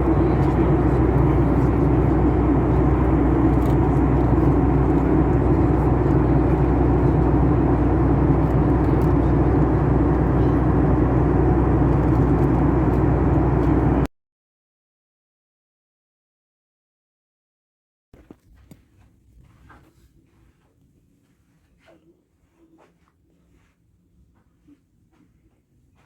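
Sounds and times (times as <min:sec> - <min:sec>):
vehicle interior drone: 0:00.0 - 0:14.1.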